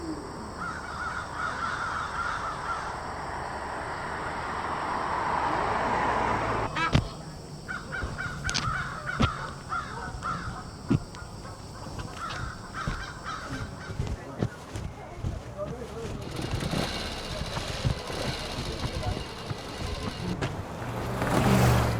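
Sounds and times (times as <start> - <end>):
night city ambience: 0.0 - 21.9
birds cawing: 0.2 - 15.2
rushing noise: 1.8 - 7.2.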